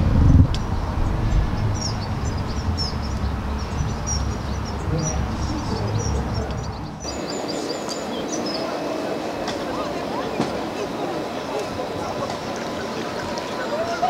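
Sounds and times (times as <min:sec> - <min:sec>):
low rumble: 0:00.0 - 0:07.0
small birds chirping: 0:00.5 - 0:14.0.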